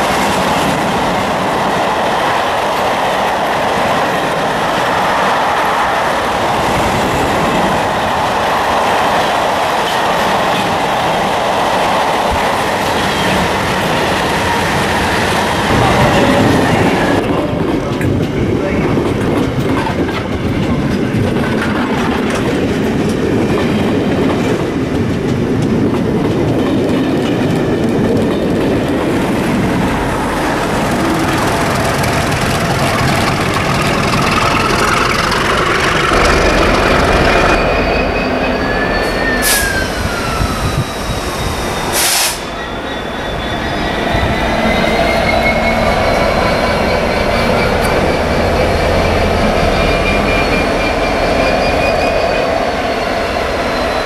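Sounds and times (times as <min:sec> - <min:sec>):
train carriages clickety-clack: 0:00.0 - 0:54.0
diesel locomotive running past: 0:27.3 - 0:54.0
high wheel squeals: 0:31.0 - 0:54.0.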